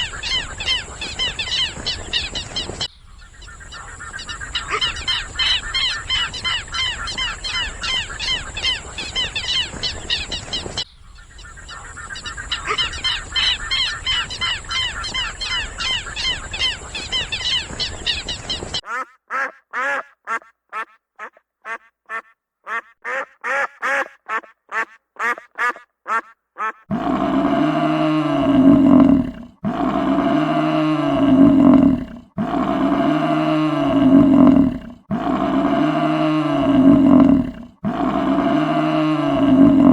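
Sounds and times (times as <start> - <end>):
high chattering animal calls: 0.0 - 18.8, 26.6 - 39.9
long deep animal calls: 0.0 - 18.8, 26.9 - 39.9
short animal calls: 0.0 - 39.9.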